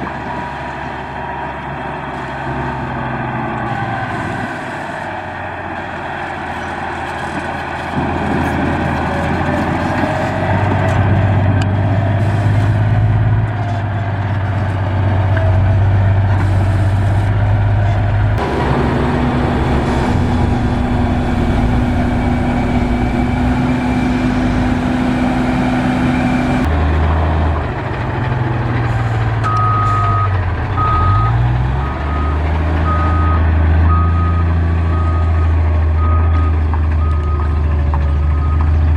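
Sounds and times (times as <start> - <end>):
heavy machinery diesel engines: 0.0 - 38.9
reversing alarm beeping: 18.4 - 26.7, 29.4 - 38.7.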